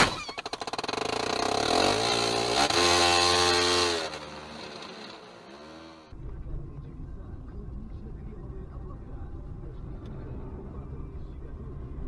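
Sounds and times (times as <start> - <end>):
vehicle engine revving hard: 0.6 - 6.1.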